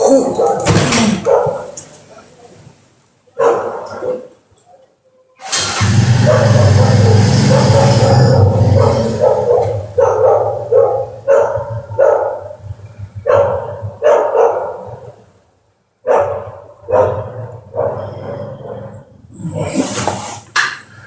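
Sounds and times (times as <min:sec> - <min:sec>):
dog barking: 0:00.0 - 0:01.8, 0:03.3 - 0:04.8, 0:05.7 - 0:15.3, 0:16.0 - 0:19.0.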